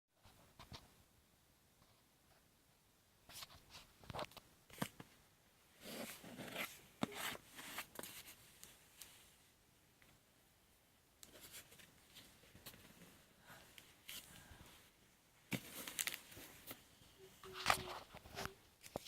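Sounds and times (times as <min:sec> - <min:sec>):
package unboxing rustles: 0:15.5 - 0:16.8.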